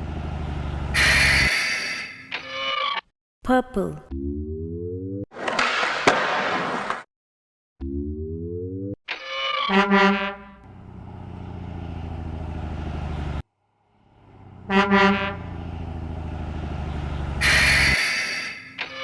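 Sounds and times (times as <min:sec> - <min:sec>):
low truck engine rumble: 0:00.0 - 0:01.3, 0:10.4 - 0:18.0
truck horn honking: 0:00.8 - 0:02.1, 0:09.7 - 0:10.9, 0:14.3 - 0:16.0, 0:17.1 - 0:18.5.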